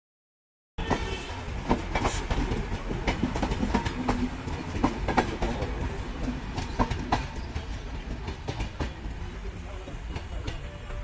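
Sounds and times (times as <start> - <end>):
train rumbling on track: 0.8 - 11.0
wheels clanking on rails: 0.8 - 11.0.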